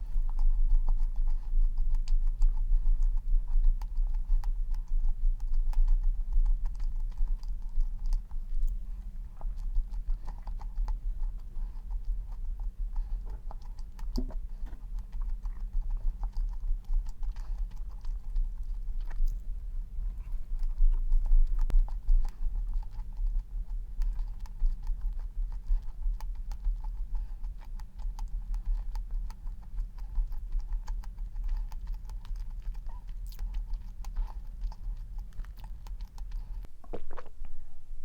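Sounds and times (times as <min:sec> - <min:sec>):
person chewing crumbly food: 0:00.0 - 0:37.4
low hum: 0:28.0 - 0:38.0.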